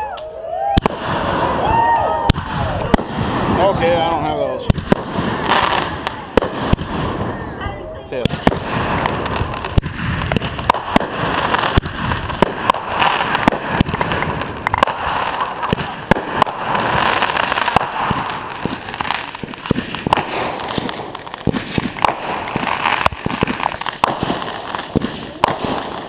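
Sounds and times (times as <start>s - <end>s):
fireworks bangs and pops: 0.7s - 26.0s
fireworks crackling hiss: 8.2s - 26.0s.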